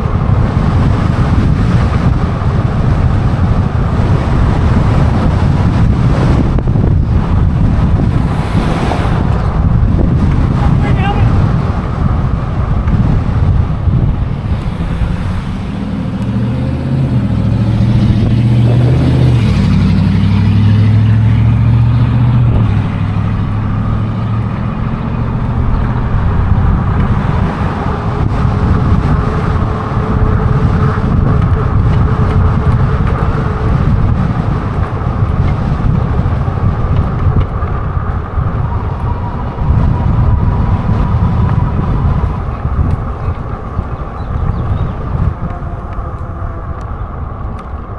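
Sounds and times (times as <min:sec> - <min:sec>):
motor vehicle passing: 0:00.0 - 0:47.9
road and wind noise: 0:00.0 - 0:47.9.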